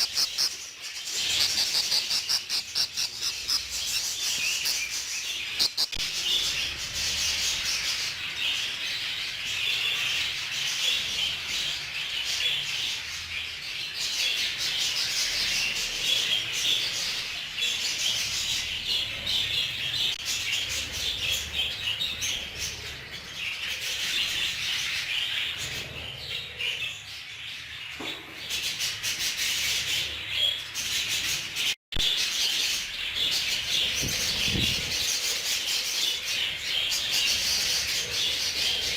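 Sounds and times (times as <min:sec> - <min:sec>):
flock of birds chattering: 0:00.0 - 0:12.2.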